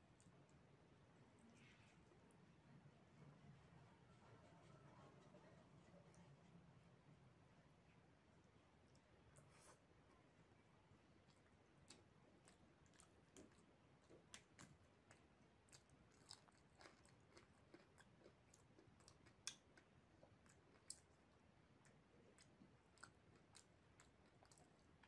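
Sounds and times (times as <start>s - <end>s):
faint chewing: 0.0s - 2.3s, 8.4s - 25.0s.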